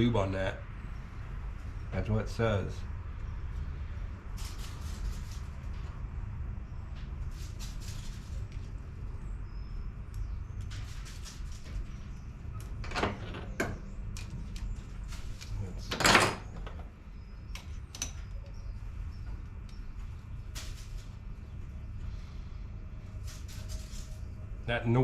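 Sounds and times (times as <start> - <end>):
steady low hum: 0.0 - 25.0
bird scurrying and scraping: 4.3 - 6.0, 7.0 - 9.2, 10.5 - 15.6, 17.7 - 21.8, 23.0 - 24.4.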